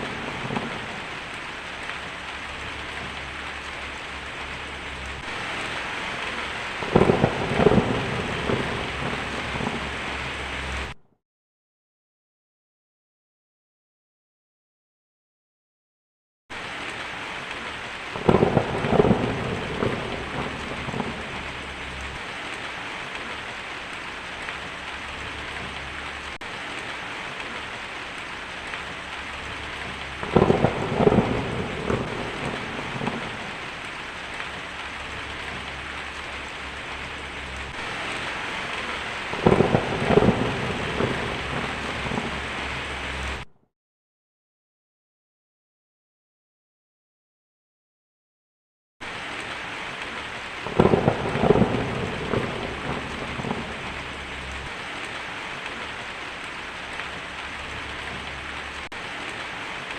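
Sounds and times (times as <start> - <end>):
steady rainfall: 0.0 - 11.0, 16.5 - 43.5, 49.0 - 59.9
thunder rolling: 0.0 - 11.0, 18.1 - 23.2, 26.9 - 43.5, 50.6 - 54.7.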